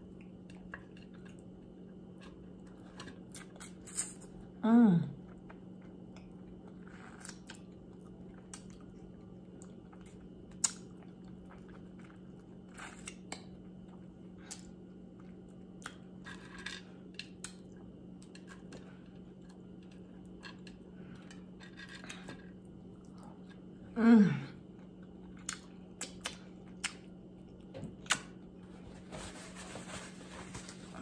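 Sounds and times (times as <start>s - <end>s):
steady low hum: 0.0s - 31.0s
person chewing: 5.2s - 16.2s, 24.6s - 28.4s.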